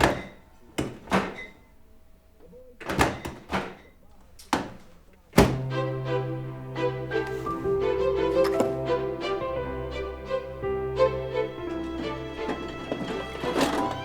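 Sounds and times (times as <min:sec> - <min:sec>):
music with held chord: 0:05.6 - 0:14.0.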